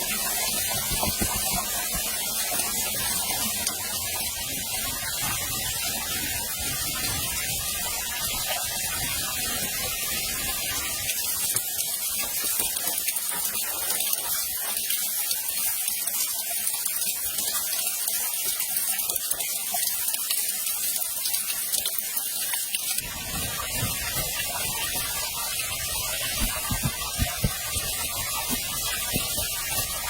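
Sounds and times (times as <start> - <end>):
waterfall rushing: 23.0 - 30.0.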